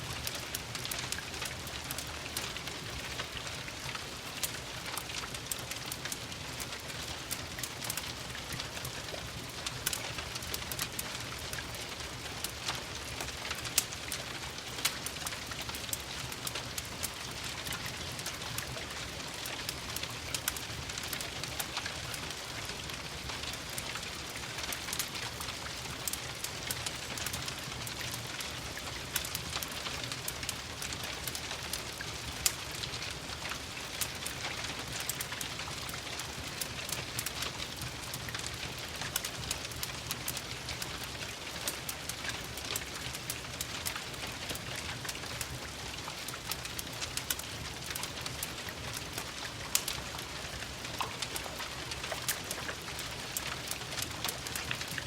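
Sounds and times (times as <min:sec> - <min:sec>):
rain pattering: 0:00.0 - 0:55.0
wood fire crackling: 0:00.0 - 0:55.0.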